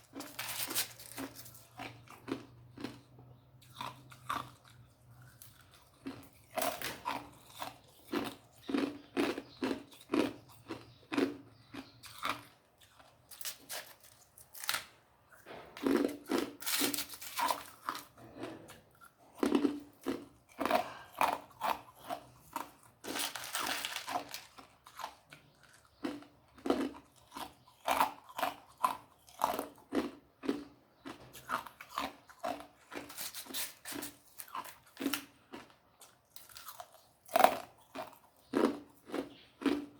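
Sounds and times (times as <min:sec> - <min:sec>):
person crunching ice: 0:00.0 - 0:03.0, 0:15.8 - 0:18.6, 0:19.4 - 0:30.2, 0:31.6 - 0:35.7.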